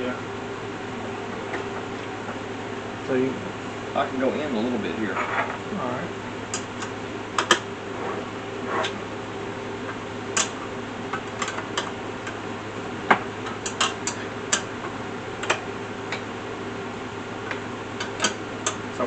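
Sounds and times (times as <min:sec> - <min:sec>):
steady low hum: 0:00.0 - 0:19.0
hardware clicks and knocks: 0:06.5 - 0:07.7, 0:09.9 - 0:12.4, 0:13.1 - 0:16.3, 0:17.5 - 0:18.8.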